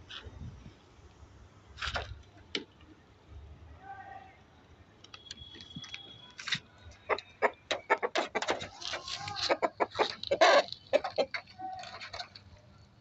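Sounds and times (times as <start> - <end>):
chicken clucking: 6.9 - 12.4.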